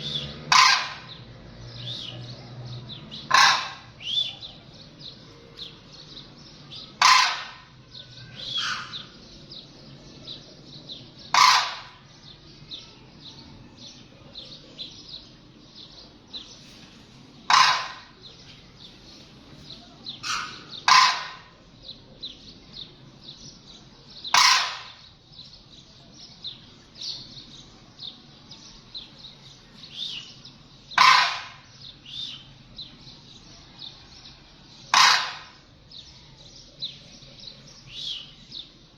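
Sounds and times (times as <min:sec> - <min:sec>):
loud bird calls: 0:00.0 - 0:38.9
high bird chirps: 0:01.8 - 0:09.7.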